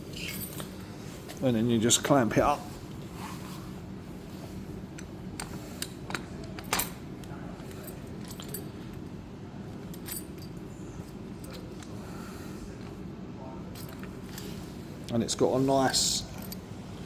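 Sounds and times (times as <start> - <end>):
keys rattling: 0.0 - 1.4, 4.4 - 12.0, 13.7 - 14.8, 16.0 - 16.8.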